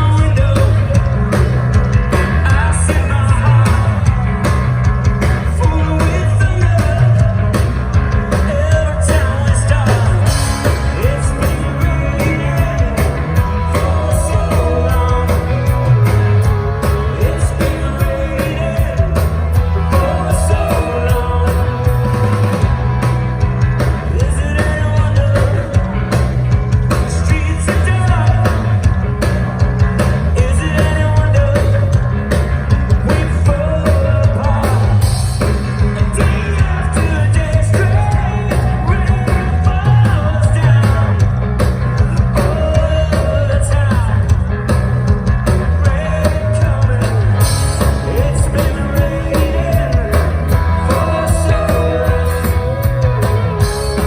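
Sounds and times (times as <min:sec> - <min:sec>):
live rock band playing: 0:00.0 - 0:54.0
person singing: 0:05.4 - 0:22.9, 0:32.9 - 0:41.3, 0:45.7 - 0:54.0.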